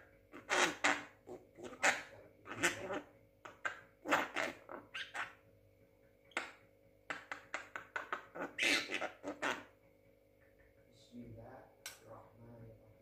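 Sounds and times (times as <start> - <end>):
myna bird squawking: 0.4 - 5.4, 7.1 - 9.7.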